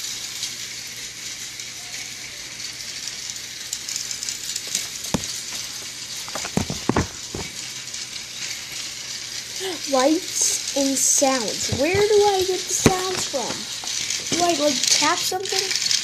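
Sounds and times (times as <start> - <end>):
steady background hiss: 0.0 - 16.0
clicks and knocks of handling: 4.7 - 7.6, 11.6 - 14.6.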